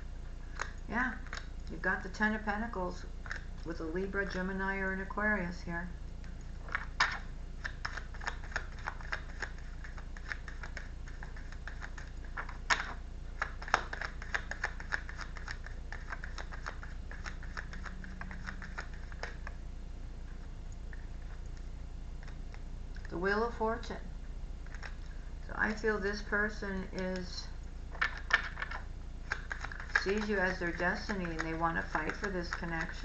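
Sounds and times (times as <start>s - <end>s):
cards being shuffled: 6.6s - 19.6s, 27.9s - 33.0s.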